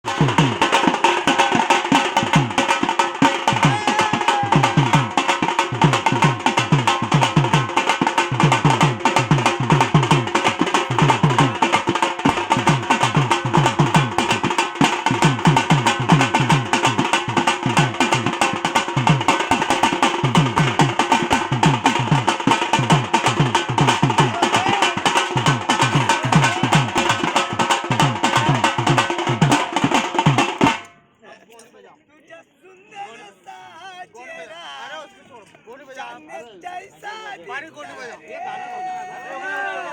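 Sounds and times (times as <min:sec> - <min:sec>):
fast steady drumming: 0:00.0 - 0:30.9.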